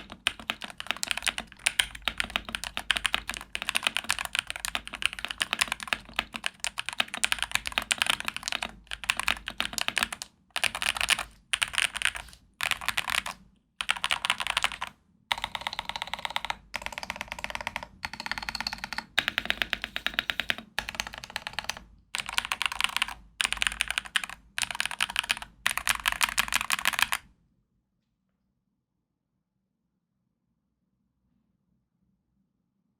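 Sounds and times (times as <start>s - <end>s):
mechanical keyboard typing: 0.0s - 27.3s.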